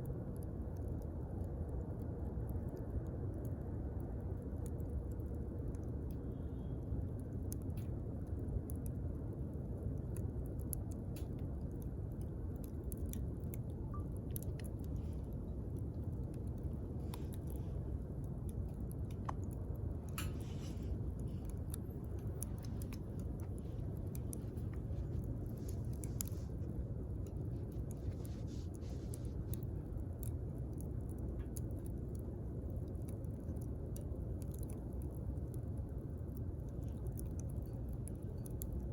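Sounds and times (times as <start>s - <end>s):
campfire crackling and popping: 0.2s - 38.9s
fire hissing flares: 9.7s - 35.5s
low rumble: 11.1s - 38.9s.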